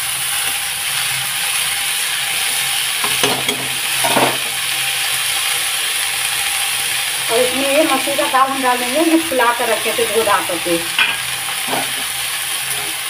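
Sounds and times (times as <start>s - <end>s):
greens sizzling in hot oil: 0.0s - 13.0s
utensil scraping and knocking pan: 11.0s - 12.1s.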